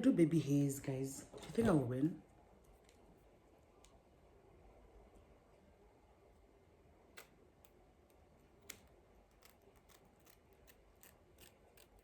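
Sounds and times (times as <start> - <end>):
scissors snipping: 7.1 - 12.0.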